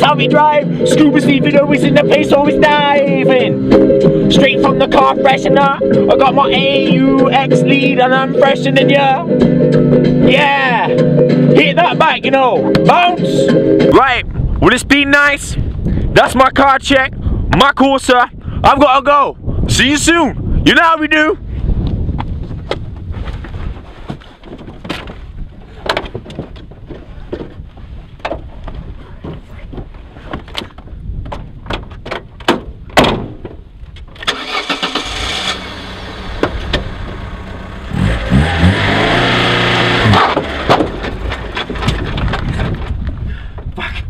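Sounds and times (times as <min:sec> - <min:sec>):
clicks and knocks of car door: 0:30.3 - 0:33.6
car engine starting: 0:34.2 - 0:42.3
car engine revving: 0:34.3 - 0:41.8
car engine idling: 0:34.3 - 0:42.0.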